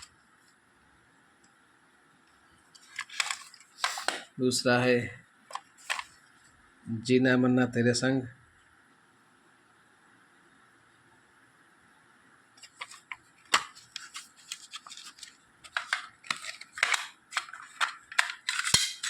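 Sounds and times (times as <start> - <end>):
plastic cassette cases clicking: 2.8 - 4.3, 5.5 - 6.1, 12.6 - 19.0.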